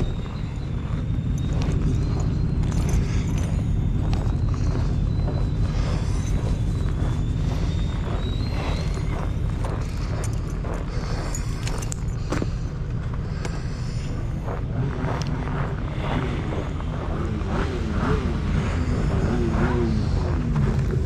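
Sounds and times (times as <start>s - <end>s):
vehicle engine rumbling: 0.0s - 21.0s
wavering pitched tone: 0.0s - 21.0s.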